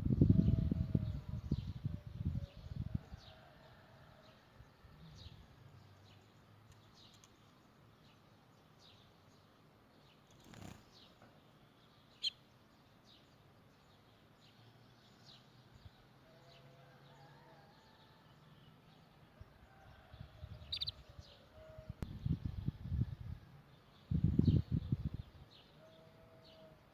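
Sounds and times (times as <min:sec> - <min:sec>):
canary chirping: 0:20.7 - 0:21.0.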